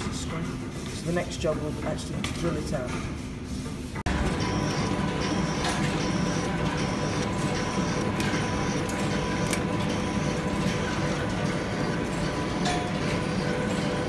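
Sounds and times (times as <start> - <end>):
metal lathe running: 4.1 - 14.0.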